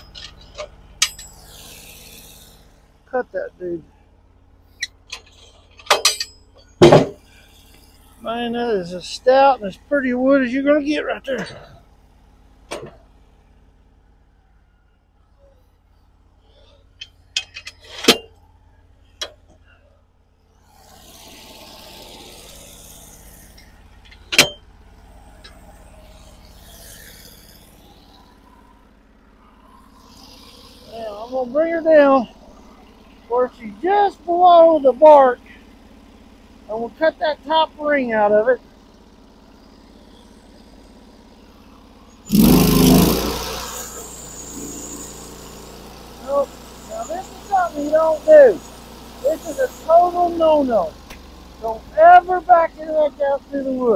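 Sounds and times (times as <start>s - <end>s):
sharp metal clank: 0.0s - 1.6s, 5.1s - 7.2s, 24.3s - 24.6s
sawmill engine running: 0.0s - 14.8s, 16.3s - 53.9s.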